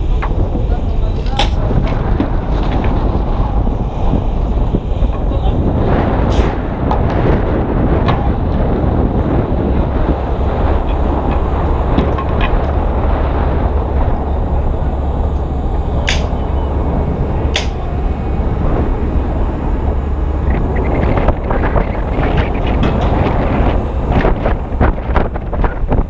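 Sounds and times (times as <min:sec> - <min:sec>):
wind buffeting microphone: 0:00.0 - 0:26.0
sharp knocks: 0:17.5 - 0:17.8.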